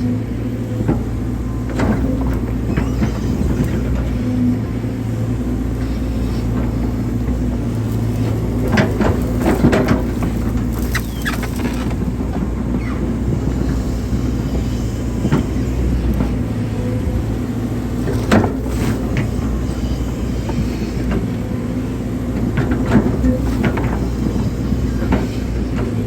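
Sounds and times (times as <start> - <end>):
excavator diesel engine running: 0.0 - 26.0
machine knocks and clanks: 6.6 - 13.8.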